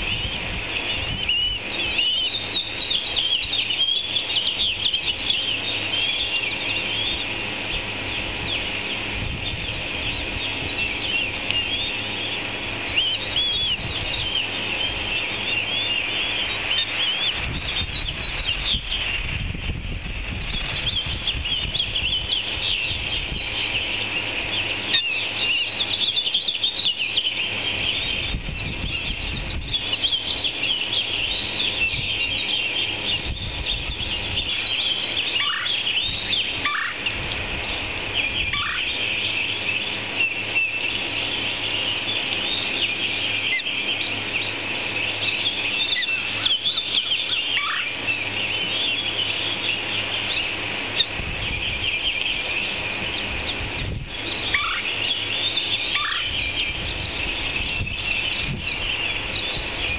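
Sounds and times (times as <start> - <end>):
birds chirping chorus: 0.0 - 59.9
downward-sweeping bird calls: 0.0 - 59.9.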